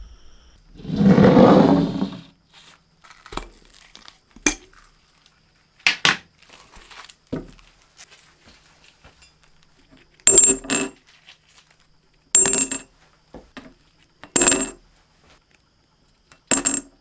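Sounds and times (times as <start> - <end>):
metal rattling scrape: 0.8 - 2.3.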